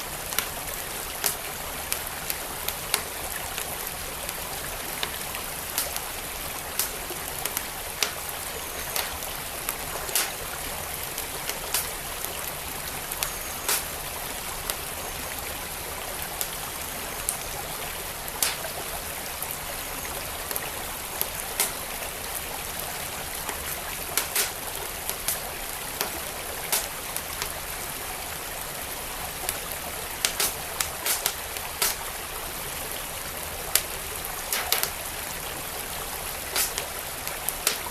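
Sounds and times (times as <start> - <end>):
flowing creek: 0.0 - 37.9
wood fire crackling: 0.0 - 37.9.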